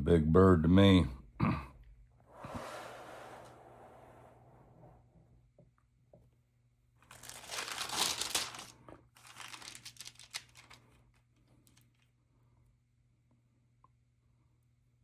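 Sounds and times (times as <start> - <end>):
album page crinkling rustle: 7.0 - 12.1.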